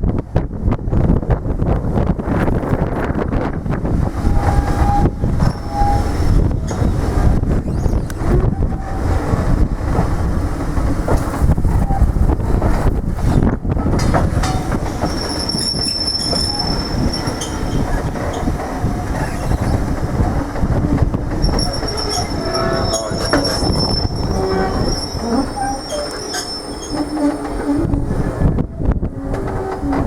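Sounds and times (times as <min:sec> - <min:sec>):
train rumbling past: 0:00.0 - 0:30.0
wheels clicking over rail joints: 0:02.4 - 0:30.0
high-pitched wheel squeal: 0:04.2 - 0:09.6, 0:14.4 - 0:20.2, 0:20.8 - 0:30.0.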